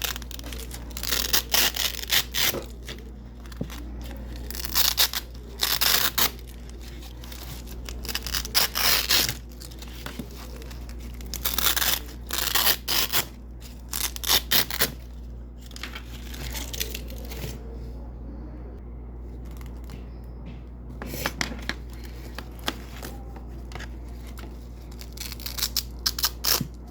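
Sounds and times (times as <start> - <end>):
velcro ripping apart: 0.0 - 2.7, 4.4 - 6.6, 7.2 - 9.8, 11.1 - 15.0, 25.0 - 26.7
velcro scratching: 0.0 - 2.8, 7.2 - 9.9, 10.6 - 15.0
steady low hum: 0.0 - 26.9.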